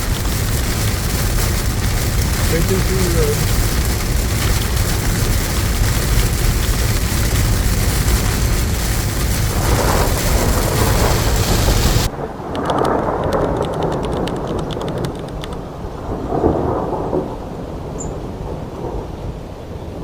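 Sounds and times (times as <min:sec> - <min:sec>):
road and wind noise inside vehicle: 0:00.0 - 0:15.7
rain pattering: 0:00.0 - 0:20.0.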